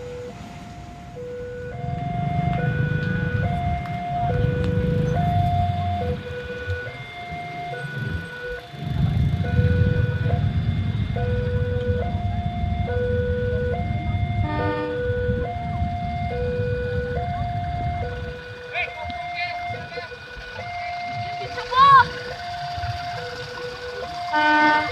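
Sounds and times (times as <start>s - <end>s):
low rumble: 0.0s - 18.7s
horn blast: 0.0s - 23.5s, 24.2s - 24.9s
railroad crossing alarm: 0.0s - 24.9s.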